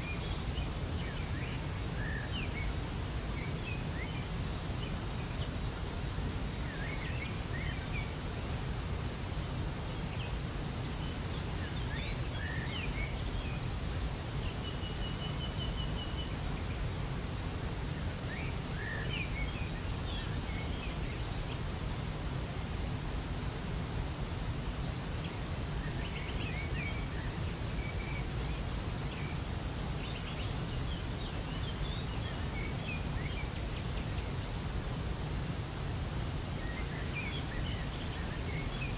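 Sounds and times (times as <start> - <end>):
birds chirping: 24.4 - 38.9.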